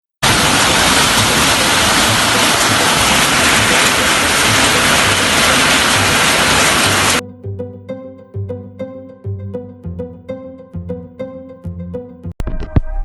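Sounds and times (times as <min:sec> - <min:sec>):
heavy rain pouring: 0:00.2 - 0:07.2.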